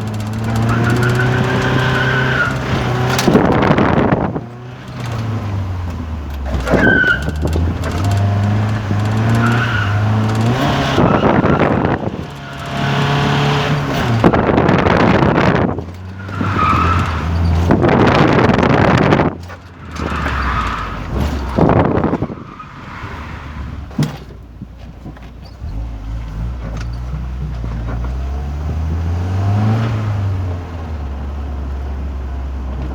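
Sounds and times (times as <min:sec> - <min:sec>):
car engine revving: 0:00.0 - 0:23.8
tires squealing: 0:00.0 - 0:24.0.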